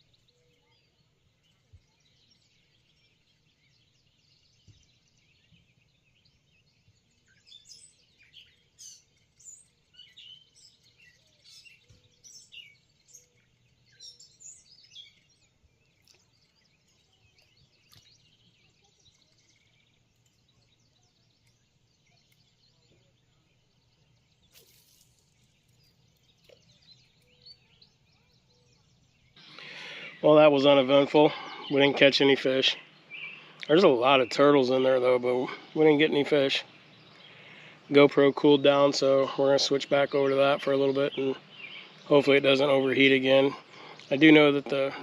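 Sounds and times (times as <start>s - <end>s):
birds chirping: 0.0s - 45.0s.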